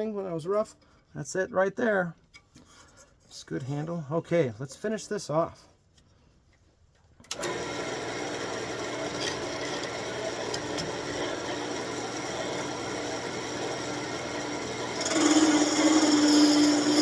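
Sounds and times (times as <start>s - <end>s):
gouge rasping on spinning wood: 7.9s - 17.0s.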